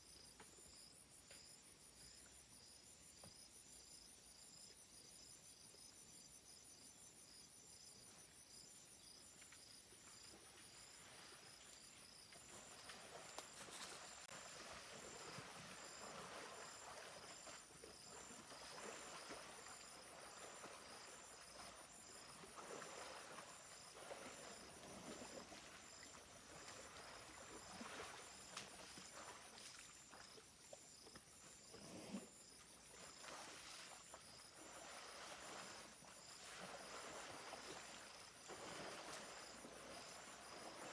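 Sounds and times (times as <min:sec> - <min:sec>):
insects chirping: 0:00.0 - 0:40.9
rustling and scuffing: 0:13.0 - 0:14.3.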